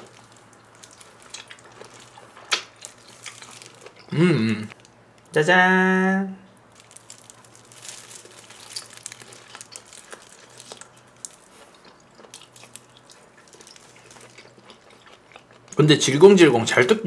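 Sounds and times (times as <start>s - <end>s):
person chewing raw fish: 0.0s - 4.1s, 6.8s - 15.7s.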